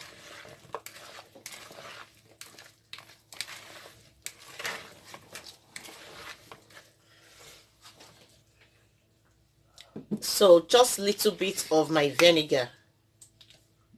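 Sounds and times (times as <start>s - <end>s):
utensil tossing salad in bowl: 0.0s - 8.4s.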